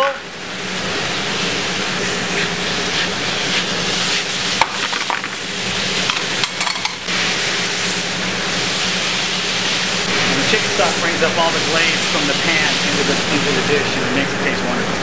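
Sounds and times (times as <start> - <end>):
food sizzling in a pan: 0.0 - 14.4
pans clicking and knocking: 4.6 - 5.4, 6.0 - 7.1.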